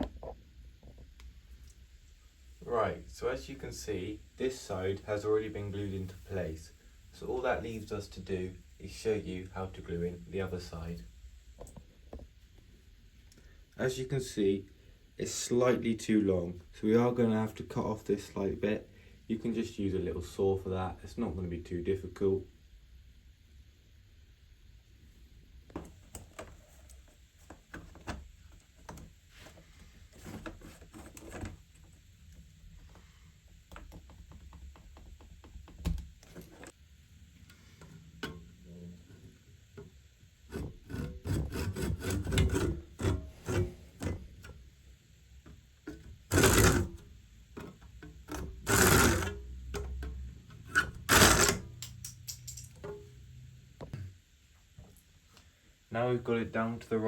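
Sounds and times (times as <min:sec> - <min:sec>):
hand saw cutting: 0:40.5 - 0:44.2, 0:46.3 - 0:47.0, 0:48.3 - 0:49.4, 0:50.7 - 0:51.8
loud scraping bursts: 0:46.3 - 0:47.0, 0:48.4 - 0:49.4, 0:50.6 - 0:51.8.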